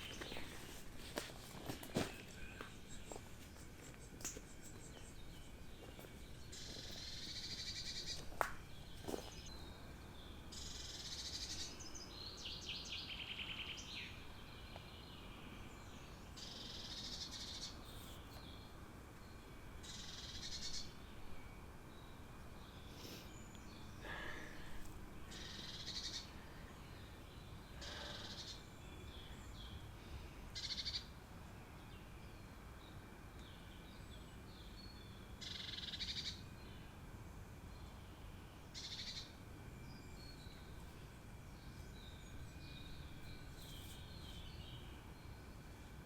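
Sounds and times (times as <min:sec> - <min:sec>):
small bird chirps and calls: 0:25.3 - 0:27.2, 0:30.6 - 0:31.1, 0:34.8 - 0:36.4, 0:38.8 - 0:39.3.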